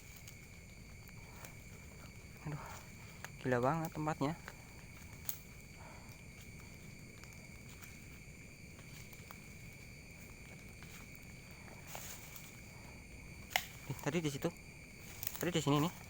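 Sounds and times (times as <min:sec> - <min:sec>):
rustle: 0:00.0 - 0:16.0.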